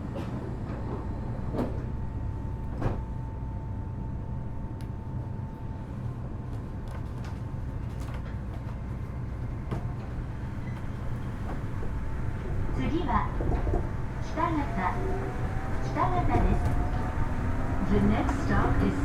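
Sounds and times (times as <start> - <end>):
sliding doors closing clunks: 10.7 - 19.0.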